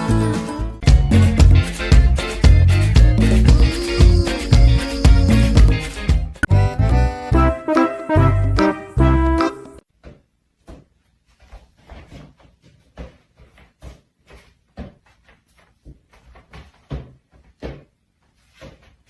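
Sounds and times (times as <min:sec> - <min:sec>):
music: 0:00.0 - 0:09.8.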